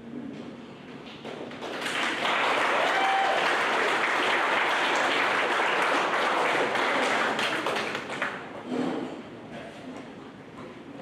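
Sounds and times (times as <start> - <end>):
guests applauding: 1.4 - 8.6.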